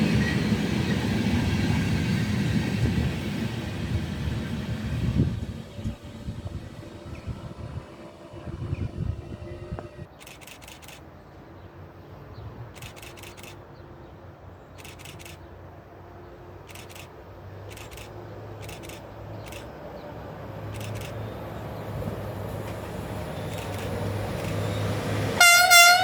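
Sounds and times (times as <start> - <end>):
train rumble: 0.0 - 11.0, 16.0 - 26.0
sharp high clicks: 9.7 - 11.1, 12.8 - 13.6, 14.8 - 15.5, 16.7 - 19.8, 20.7 - 21.2, 23.4 - 24.7.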